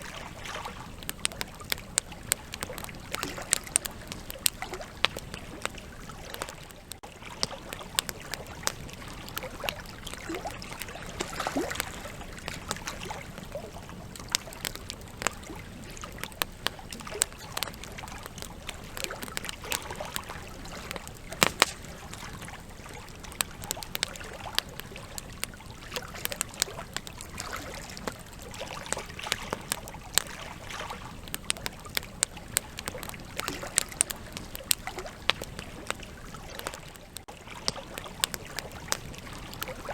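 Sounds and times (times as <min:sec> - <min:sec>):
campfire crackling and popping: 0:00.0 - 0:39.9
rush of flame: 0:20.9 - 0:22.5.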